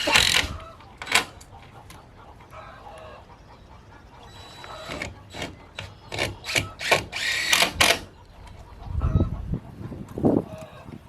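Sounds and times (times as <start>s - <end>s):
power drill driving screw: 0.0s - 1.3s, 4.4s - 8.1s.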